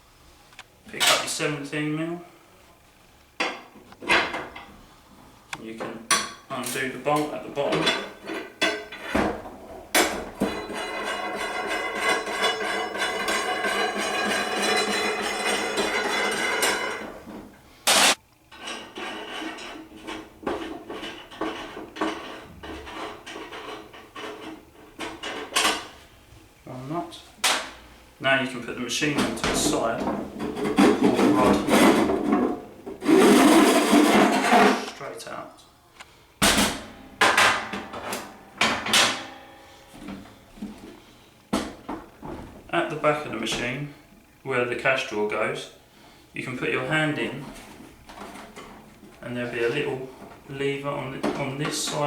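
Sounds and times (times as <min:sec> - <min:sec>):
metal rod clunking and scraping: 0:07.6 - 0:17.4.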